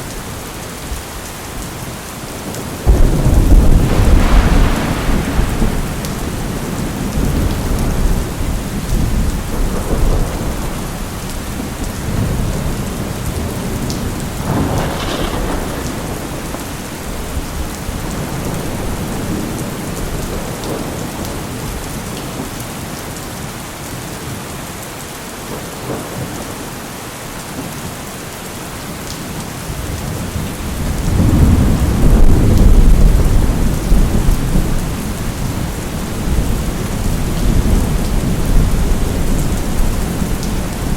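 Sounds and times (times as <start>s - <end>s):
steady rain: 0.0s - 40.9s
rolling thunder: 2.4s - 21.9s, 29.8s - 40.9s
thunder crack: 2.8s - 21.0s.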